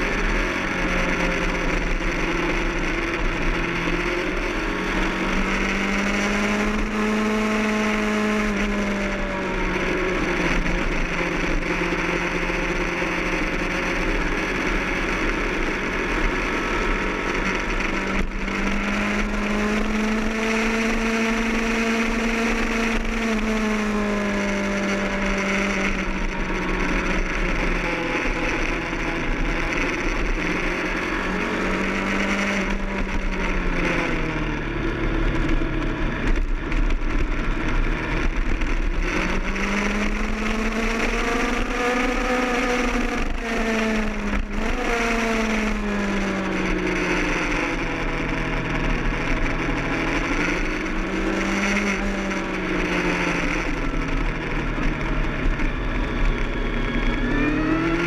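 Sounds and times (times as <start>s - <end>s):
motorcycle engine revving high: 0.0s - 58.0s
rushing wind: 0.0s - 58.0s.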